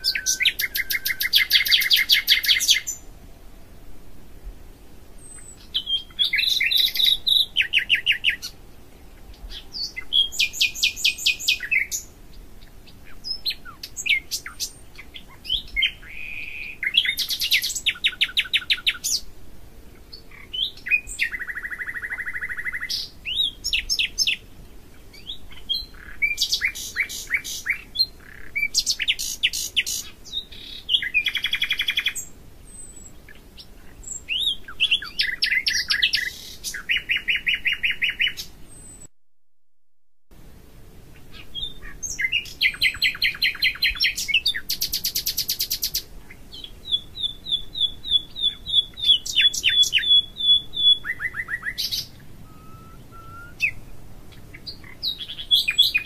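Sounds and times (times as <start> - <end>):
songbird singing trills: 0.0 - 3.1, 5.2 - 19.3, 19.9 - 39.1, 41.1 - 56.0.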